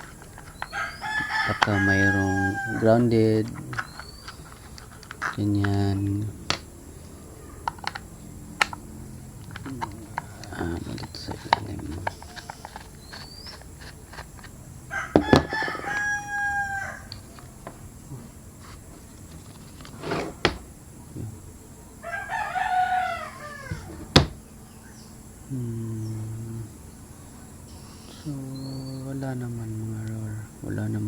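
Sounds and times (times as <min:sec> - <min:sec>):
long bird calls: 0:00.0 - 0:19.9, 0:20.5 - 0:31.0
knocks from handling kettle base: 0:15.2 - 0:16.0, 0:23.7 - 0:24.4.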